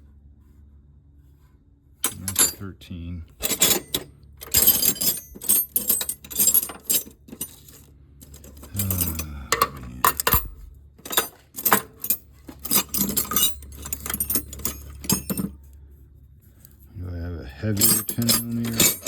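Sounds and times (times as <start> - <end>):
wrenches clinking in drawer: 2.0 - 2.7, 3.4 - 15.6, 17.7 - 19.0.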